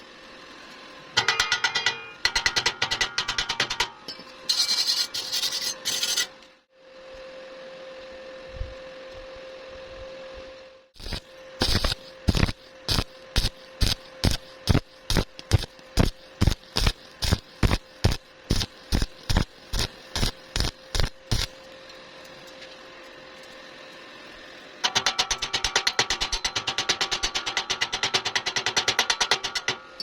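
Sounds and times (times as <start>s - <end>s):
hammer striking metal: 1.2s - 4.8s.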